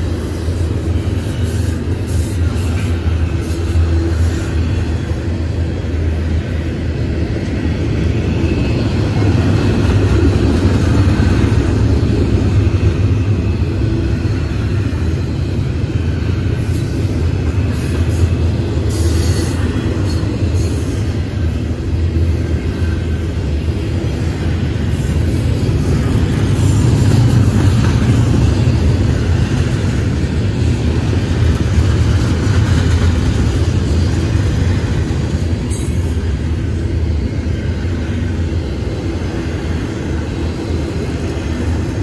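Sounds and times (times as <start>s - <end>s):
train wheels rumbling on rails: 0.0s - 42.0s.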